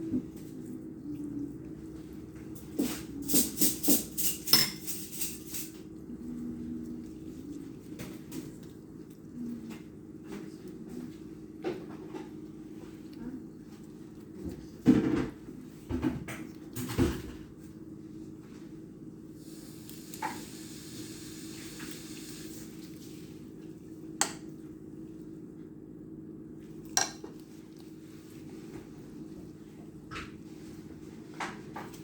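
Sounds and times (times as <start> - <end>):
steady low hum: 0.0 - 32.0
dishes and utensils clinking: 2.8 - 5.8.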